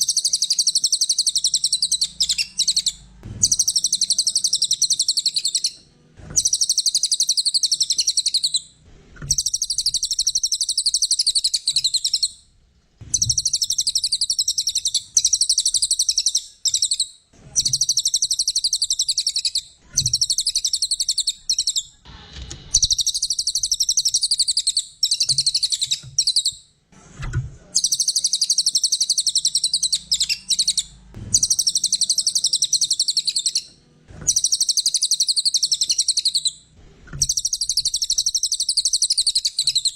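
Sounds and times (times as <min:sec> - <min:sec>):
bird chattering trills: 0:00.0 - 0:05.8, 0:22.7 - 0:26.6, 0:27.8 - 0:33.7, 0:37.2 - 0:39.9.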